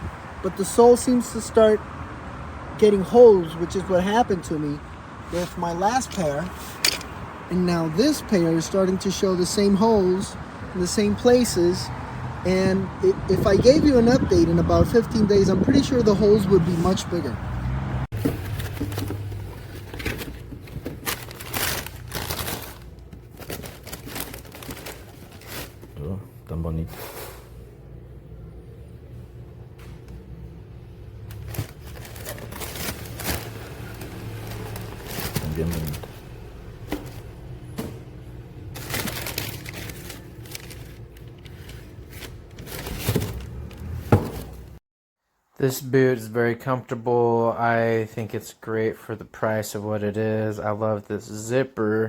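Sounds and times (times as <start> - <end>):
rustling and crinkling: 18.1 - 26.0, 31.3 - 38.0, 38.7 - 44.8.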